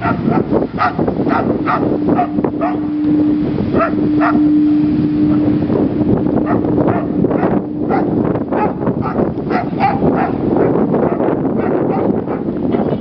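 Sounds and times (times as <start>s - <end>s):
wind buffeting microphone: 0.0s - 13.0s
steady low tone: 0.6s - 11.6s.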